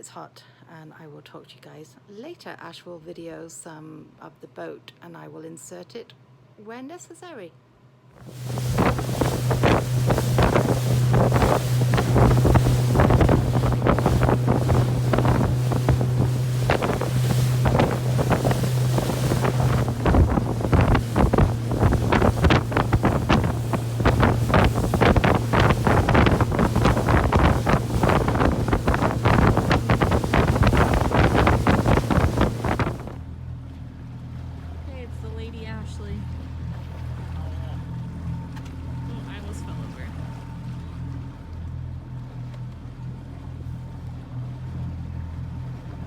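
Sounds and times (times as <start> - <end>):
outboard engine droning: 8.1 - 46.0
wind buffeting microphone: 8.2 - 33.2
water splashing against hull: 8.2 - 46.0.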